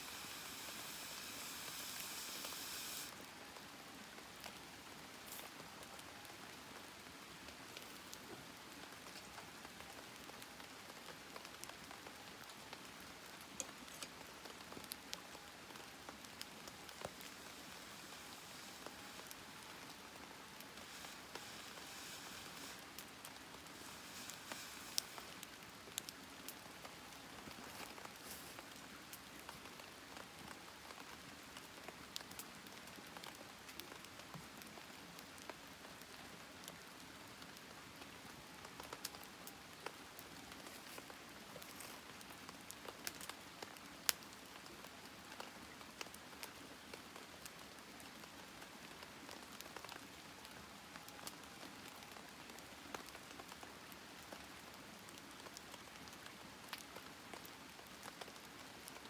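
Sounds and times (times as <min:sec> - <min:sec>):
fire crackling and popping: 0:00.0 - 0:03.2, 0:12.4 - 0:29.6
campfire hiss: 0:00.0 - 0:36.4, 0:37.2 - 0:59.0.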